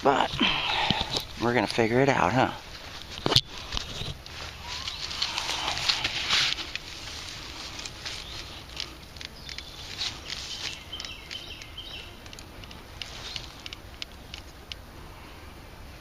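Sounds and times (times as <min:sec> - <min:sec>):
rustling and scraping in soil: 0:00.0 - 0:15.4.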